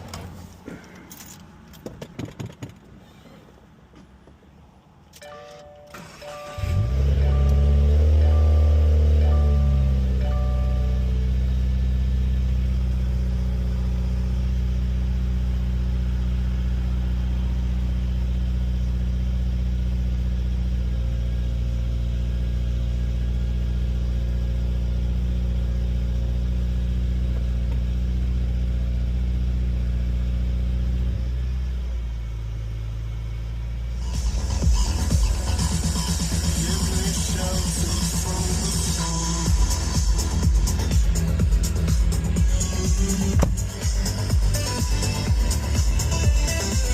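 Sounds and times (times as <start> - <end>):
car engine idling: 5.9 - 46.9.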